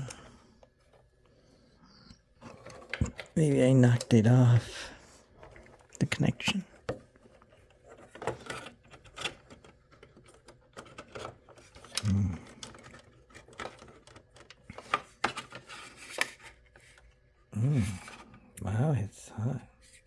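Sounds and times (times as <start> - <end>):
hands handling computer parts: 2.0 - 18.5
person humming: 12.0 - 12.6, 17.6 - 18.1.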